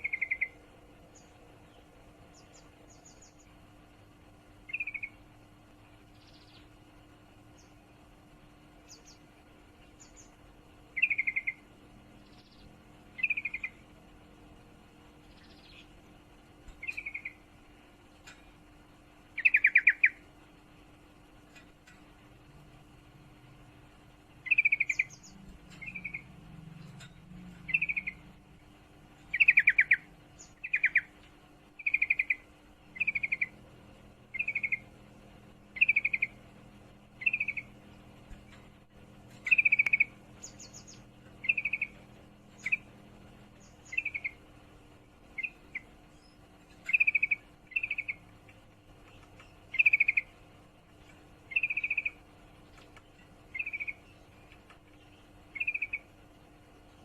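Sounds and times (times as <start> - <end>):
bird trilled chattering calls: 0.0 - 0.6, 4.7 - 5.2, 11.0 - 11.6, 13.2 - 13.8, 16.8 - 17.5, 19.4 - 20.2, 24.4 - 28.4, 29.2 - 31.2, 31.8 - 33.6, 34.3 - 35.0, 35.7 - 36.4, 37.2 - 38.7, 39.4 - 42.9, 43.6 - 44.4, 45.4 - 48.2, 49.1 - 50.3, 51.5 - 52.9, 53.5 - 54.5, 55.5 - 56.1.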